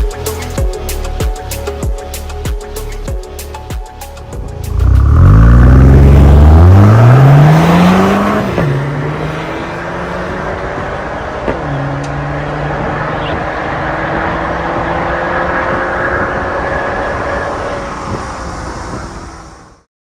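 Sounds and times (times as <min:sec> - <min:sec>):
car engine accelerating: 0:04.4 - 0:19.8.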